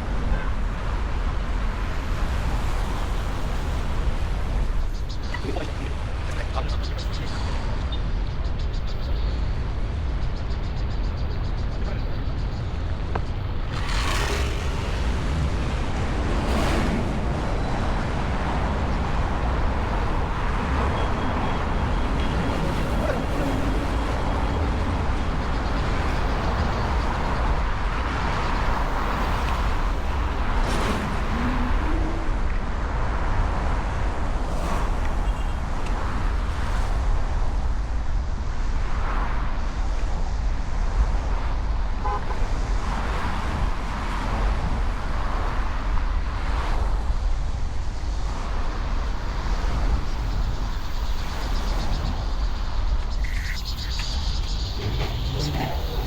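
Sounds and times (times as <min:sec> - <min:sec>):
city street traffic: 0:00.0 - 0:56.0.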